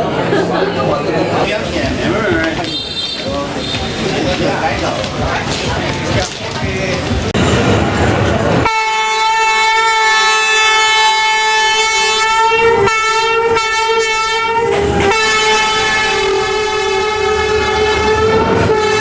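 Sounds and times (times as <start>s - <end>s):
train horn blast: 8.6s - 19.0s.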